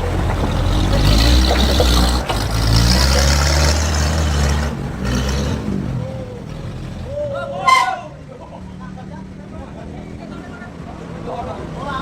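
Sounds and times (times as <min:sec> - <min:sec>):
heavy engine running: 0:00.0 - 0:08.4.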